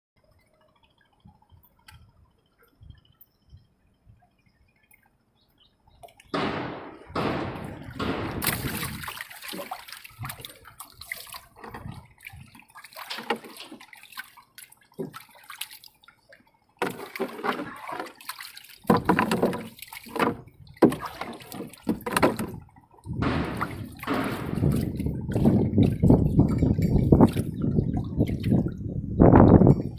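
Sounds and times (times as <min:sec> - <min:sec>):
water splashing and sloshing: 0:00.2 - 0:29.9
faint water drips: 0:07.8 - 0:28.8.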